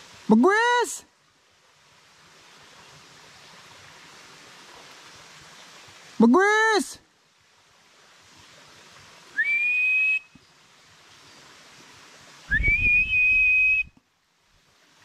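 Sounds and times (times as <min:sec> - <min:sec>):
loud whistled calls: 0:09.3 - 0:10.5, 0:12.5 - 0:14.0.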